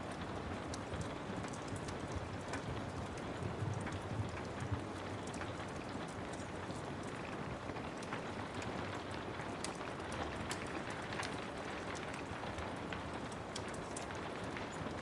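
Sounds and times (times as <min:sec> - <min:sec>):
steady rain falling: 0:00.0 - 0:15.0
wood fire crackling: 0:00.0 - 0:15.0.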